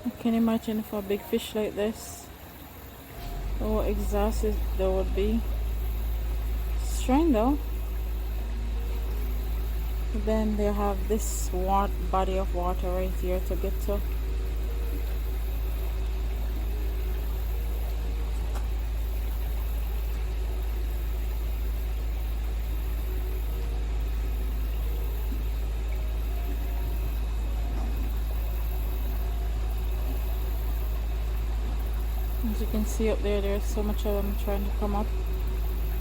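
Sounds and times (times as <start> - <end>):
fast-flowing stream water: 0.0 - 36.0.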